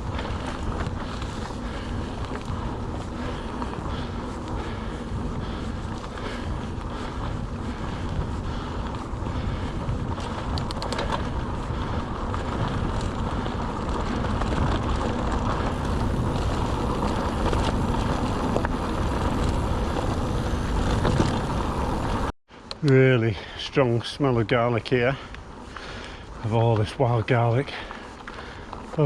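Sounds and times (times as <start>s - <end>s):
wind buffeting microphone: 0.0s - 22.3s
bike tyres rolling on track: 0.0s - 29.0s.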